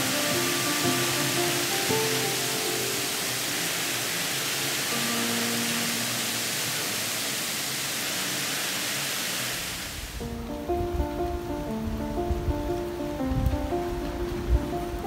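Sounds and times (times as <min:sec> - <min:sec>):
heavy rain hissing: 0:00.0 - 0:15.0
wind rumble on microphone: 0:09.9 - 0:15.0.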